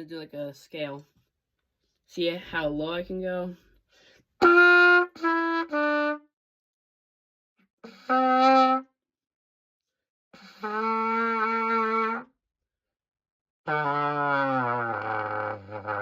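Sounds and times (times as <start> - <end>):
cornet playing descending notes: 4.4 - 6.3, 7.9 - 8.8, 10.5 - 12.3, 13.7 - 16.0.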